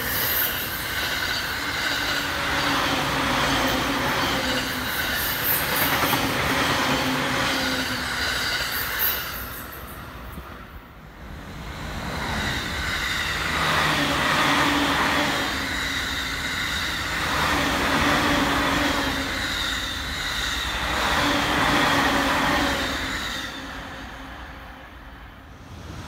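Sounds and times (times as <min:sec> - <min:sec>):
electric train passing: 0:00.0 - 0:26.0.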